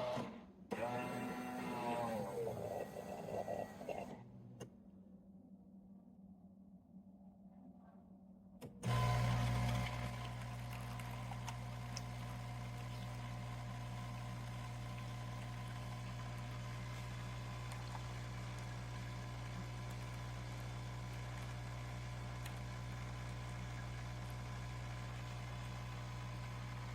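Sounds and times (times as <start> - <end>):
espresso machine humming: 0.8 - 4.2, 8.8 - 26.9.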